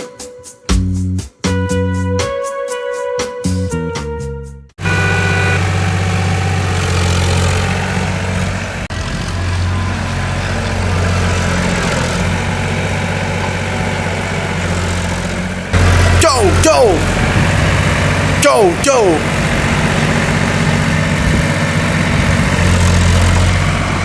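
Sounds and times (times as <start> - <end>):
vehicle engine idling: 4.8 - 16.2.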